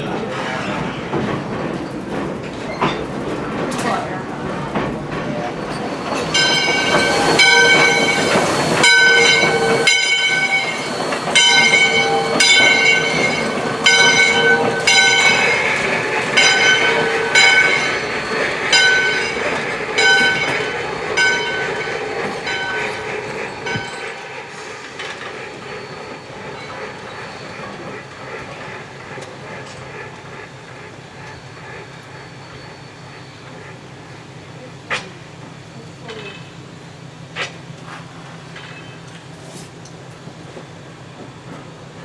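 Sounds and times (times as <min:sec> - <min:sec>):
steam locomotive bell ringing: 0:05.4 - 0:28.4
steam whistle blast: 0:06.9 - 0:13.3.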